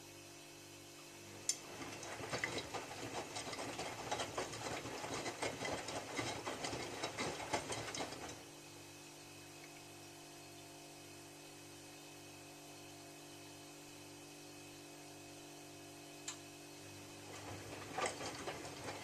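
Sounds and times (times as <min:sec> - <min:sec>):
laundry and water sloshing: 0:01.6 - 0:08.4, 0:17.2 - 0:19.0
washing machine clicks: 0:17.3 - 0:19.0.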